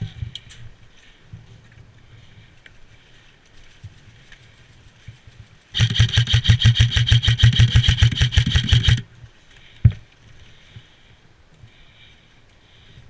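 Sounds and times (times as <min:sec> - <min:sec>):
airsoft gun rapid firing: 0:05.8 - 0:09.0
gun motor and gearbox whine: 0:05.8 - 0:09.0.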